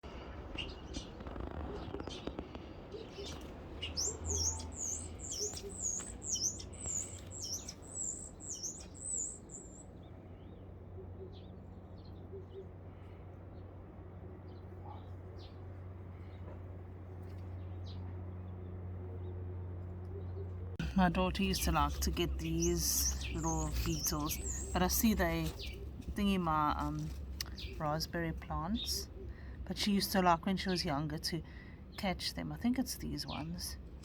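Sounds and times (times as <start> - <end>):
steady low hum: 0.0 - 34.0
small bird chirping: 0.2 - 13.7, 20.1 - 31.0.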